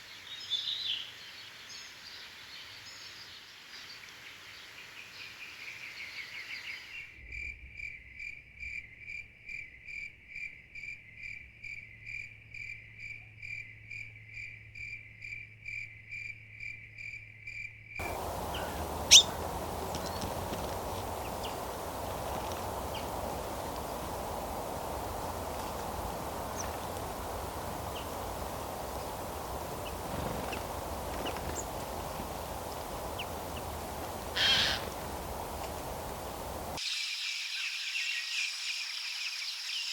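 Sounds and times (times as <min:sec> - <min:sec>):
outdoor background hiss: 0:00.0 - 0:07.2, 0:18.0 - 0:39.9
high cricket-like chirp: 0:06.0 - 0:39.9
faint bird chirps: 0:18.0 - 0:39.9.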